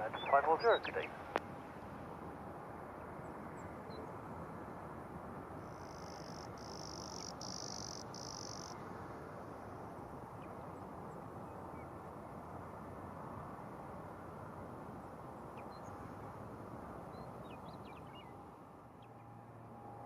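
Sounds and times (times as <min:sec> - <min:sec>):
faint background hiss: 0:00.0 - 0:19.1
insect trill: 0:05.6 - 0:08.8.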